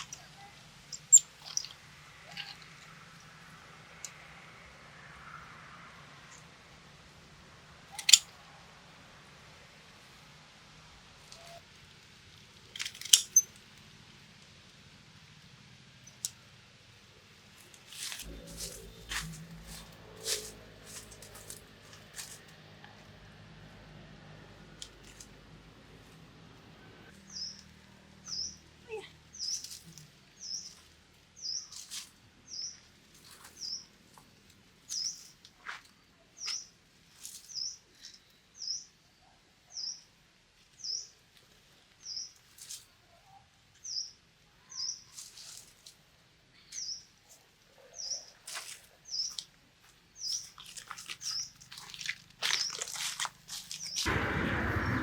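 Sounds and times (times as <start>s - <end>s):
bird chirping: 0.0s - 2.6s, 18.2s - 21.2s.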